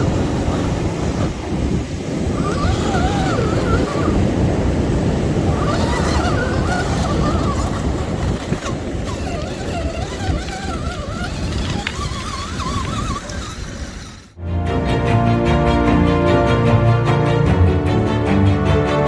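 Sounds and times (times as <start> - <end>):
small electric motor whine: 0.0 - 14.4
wind rumbling on microphone: 0.0 - 14.4.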